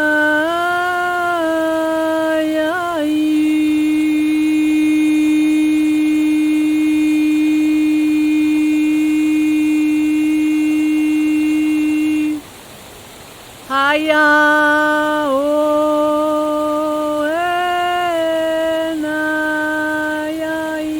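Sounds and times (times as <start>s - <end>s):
woman toning sustained vowel: 0.0s - 12.6s
soft hiss like rain: 0.0s - 20.9s.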